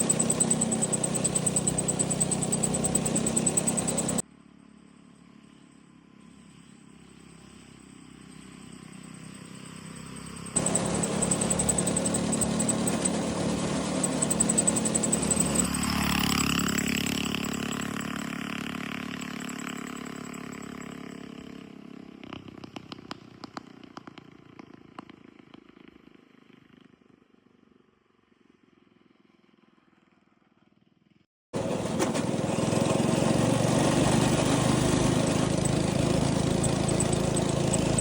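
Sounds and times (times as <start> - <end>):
go-kart engine revving: 0.0 - 4.2, 10.6 - 22.8, 31.6 - 38.0.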